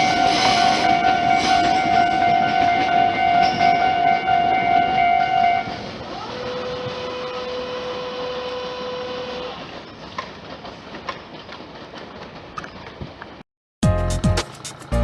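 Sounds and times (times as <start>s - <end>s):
train passing: 0.0s - 13.4s, 14.2s - 15.0s.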